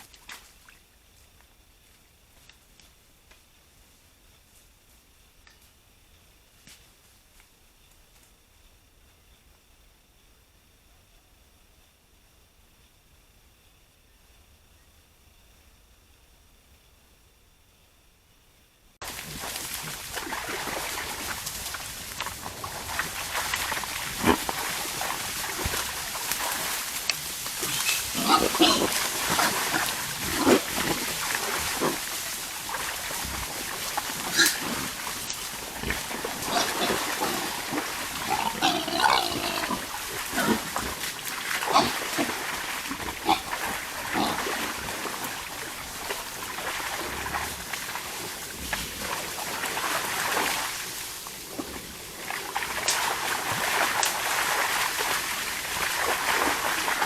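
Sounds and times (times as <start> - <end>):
wild boars grunting: 27.3 - 32.2, 33.4 - 44.8
high-pitched boar squeal: 27.6 - 29.7, 38.2 - 40.6.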